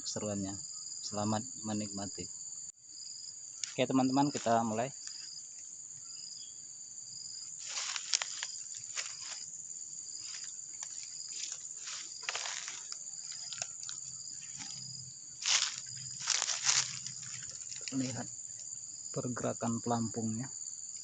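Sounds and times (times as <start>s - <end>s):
insects chorus: 0.0s - 21.0s
rustles and clicks: 7.6s - 9.5s, 10.2s - 18.7s.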